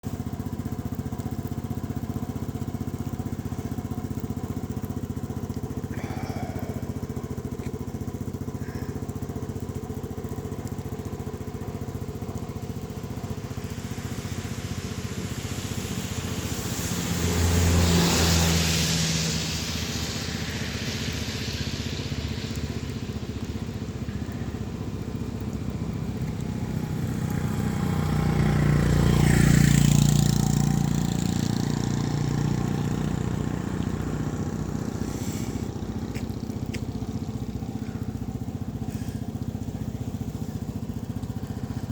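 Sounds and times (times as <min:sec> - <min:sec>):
vehicle engine running: 0:00.0 - 0:41.9
louder vehicle passing: 0:13.0 - 0:41.9.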